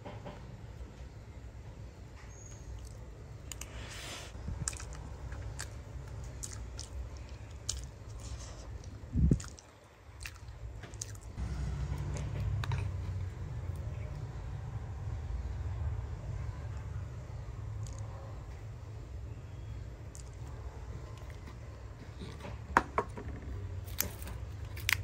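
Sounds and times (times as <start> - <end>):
low background rumble: 4.3 - 25.0
person chewing and biting: 4.6 - 11.4, 23.8 - 25.0.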